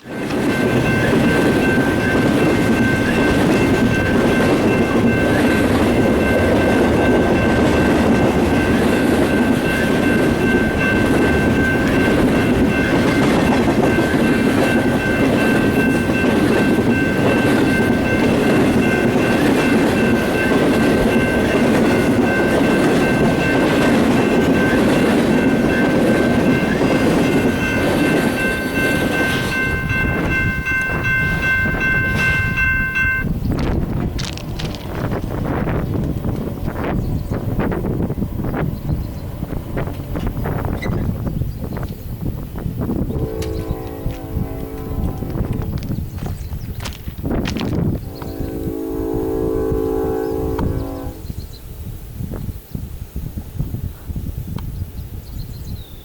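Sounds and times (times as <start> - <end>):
high-pitched tones ringing: 0.0 - 33.4
rail clatter: 0.0 - 48.8
train rumbling past: 0.0 - 51.7.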